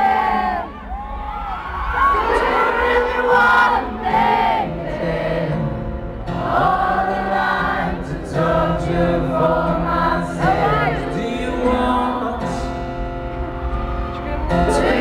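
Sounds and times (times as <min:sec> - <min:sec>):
person singing: 0:06.3 - 0:12.9, 0:13.9 - 0:15.0.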